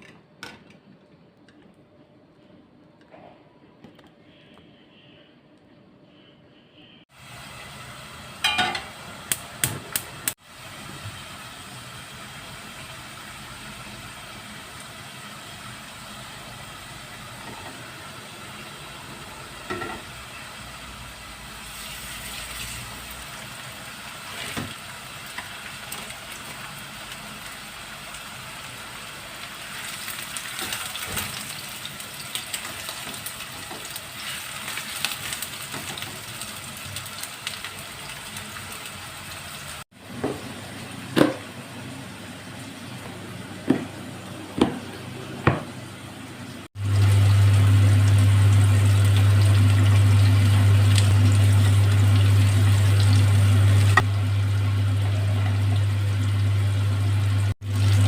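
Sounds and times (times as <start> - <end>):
food sizzling in a frying pan: 7.1 - 43.0, 46.7 - 58.0
utensils knocking on cookware: 8.4 - 8.9.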